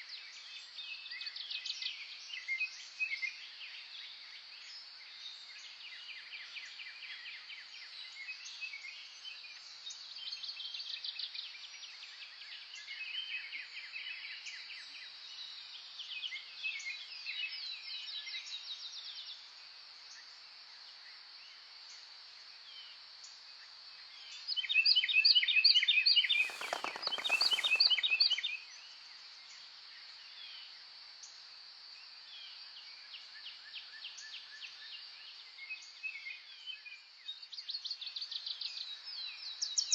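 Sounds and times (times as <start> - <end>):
songbirds singing: 26.2 - 28.5
brief rushing noise: 26.3 - 28.4.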